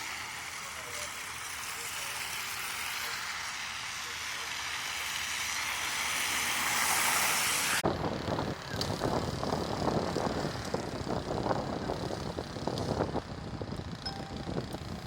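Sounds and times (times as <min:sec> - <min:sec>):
vehicle hiss: 0:00.0 - 0:07.8
low vehicle rumble with rattles: 0:07.8 - 0:15.0.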